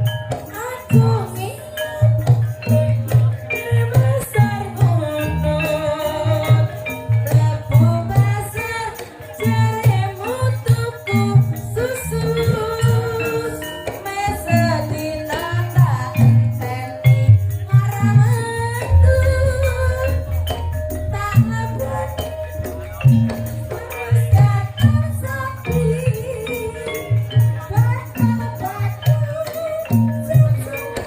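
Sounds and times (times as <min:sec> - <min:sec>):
drums: 0:00.0 - 0:31.0
jingling shaken percussion: 0:00.0 - 0:31.0
person singing: 0:18.1 - 0:31.0
deep steady bass: 0:18.8 - 0:25.2.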